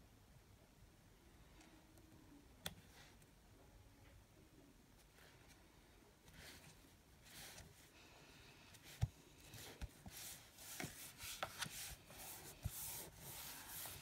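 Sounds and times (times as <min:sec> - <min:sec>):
paper rustling and sliding: 0:09.0 - 0:14.0.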